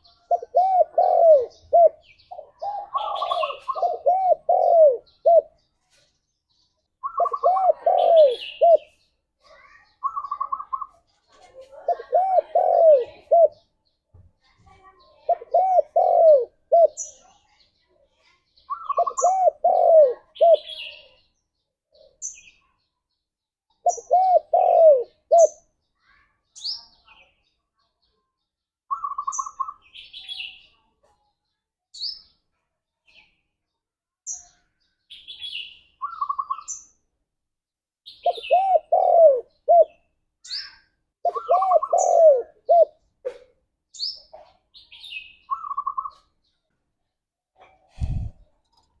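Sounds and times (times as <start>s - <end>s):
dove cooing: 0.0s - 5.6s, 7.0s - 8.9s, 11.8s - 13.6s, 15.3s - 17.0s, 18.8s - 20.8s, 23.8s - 25.6s, 38.2s - 40.0s, 41.2s - 43.4s.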